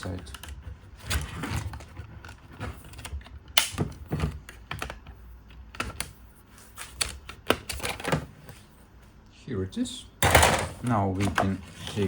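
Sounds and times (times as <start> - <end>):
handling of plastic part: 0.0 - 8.2
sharp plastic clicks: 3.0 - 5.0.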